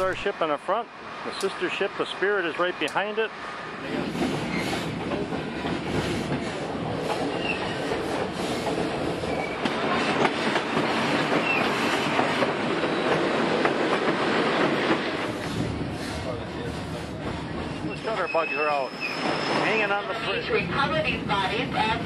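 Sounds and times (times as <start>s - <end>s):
train wheels rumbling on rail: 0.0s - 22.0s
high wheel squeals: 7.3s - 7.9s, 9.2s - 9.6s, 17.8s - 20.2s.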